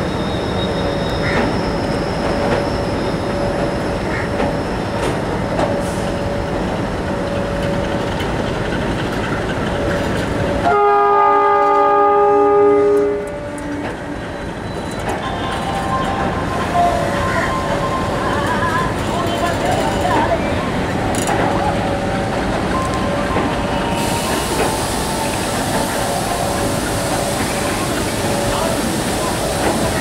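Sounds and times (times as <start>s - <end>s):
train wheels rumbling and clattering: 0.0s - 30.0s
locomotive horn blast: 10.6s - 14.2s.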